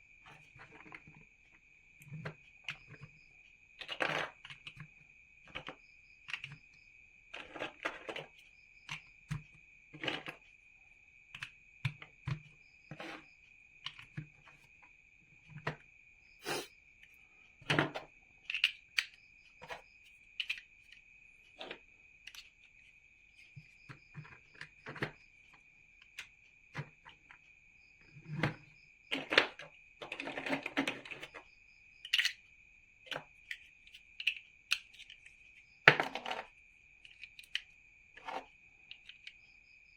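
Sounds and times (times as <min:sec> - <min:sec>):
plastic bricks clicking: 0:17.6 - 0:19.8, 0:20.4 - 0:21.0, 0:28.3 - 0:31.4, 0:32.0 - 0:32.4, 0:33.1 - 0:35.3, 0:35.9 - 0:39.4.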